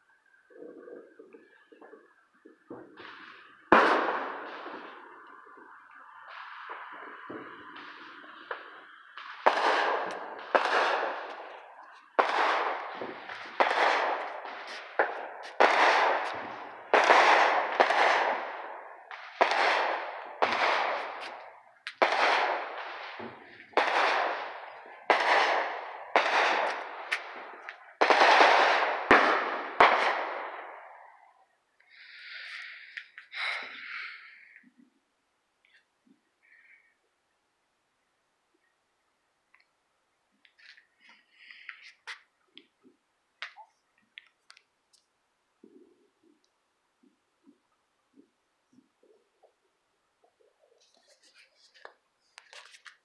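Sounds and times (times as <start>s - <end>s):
fireworks bangs echoing: 1.7s - 34.6s.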